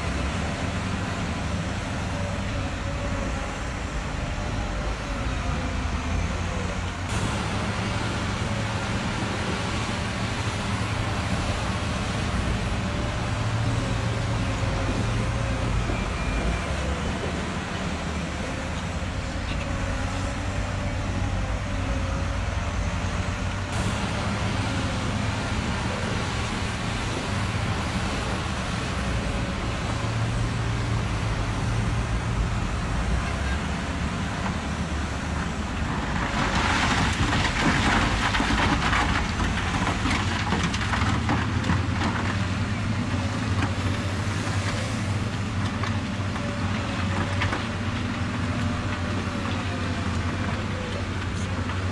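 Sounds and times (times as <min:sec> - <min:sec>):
truck engine running at low revs: 0:00.0 - 0:51.9.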